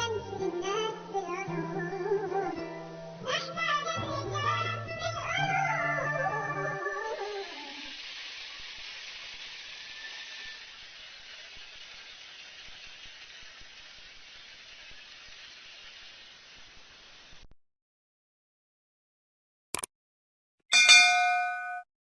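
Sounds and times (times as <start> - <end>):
steady hiss: 0.0 - 17.5.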